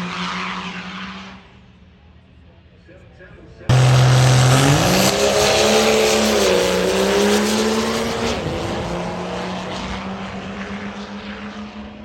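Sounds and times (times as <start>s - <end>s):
truck engine at full throttle: 3.7s - 10.9s.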